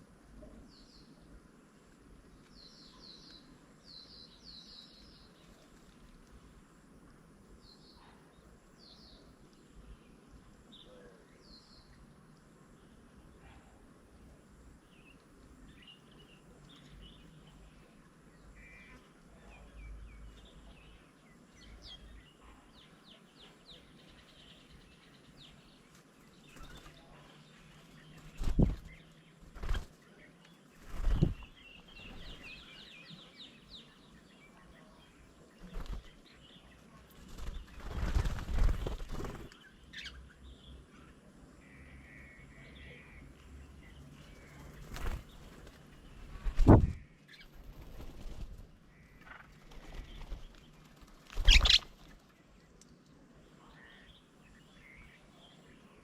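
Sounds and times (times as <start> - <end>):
birds chirping: 7.5 - 56.0
wings flapping: 28.2 - 30.0, 30.8 - 32.4, 35.6 - 36.2, 37.1 - 39.6, 44.3 - 52.3.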